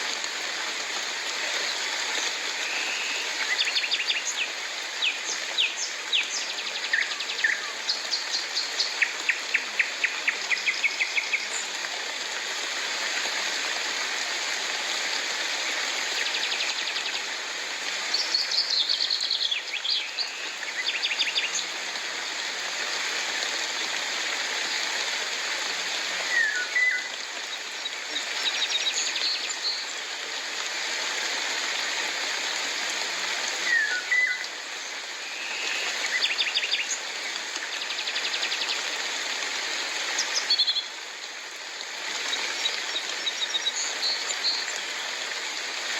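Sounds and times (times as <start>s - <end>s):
steady rain hissing: 0.0s - 45.9s.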